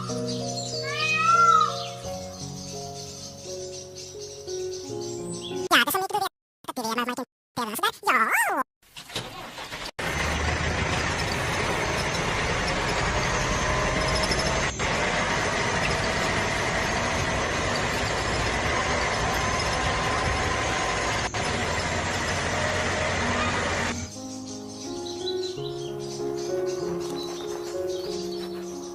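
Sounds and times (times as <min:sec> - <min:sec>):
small motor whining: 0:10.8 - 0:24.0.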